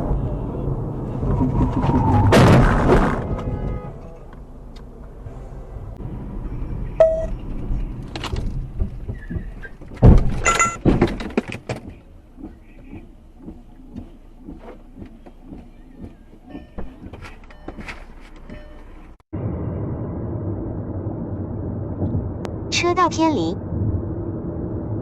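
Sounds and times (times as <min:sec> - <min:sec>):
vehicle engine rumbling: 0:00.0 - 0:25.0
rattling clatter: 0:07.4 - 0:19.1
loud bang with ringing: 0:19.4 - 0:22.6.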